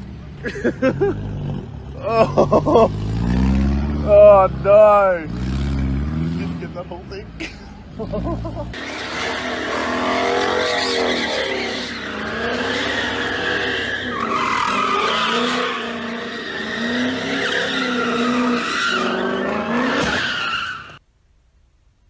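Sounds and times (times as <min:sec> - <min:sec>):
car tyres squealing: 0:08.8 - 0:21.0.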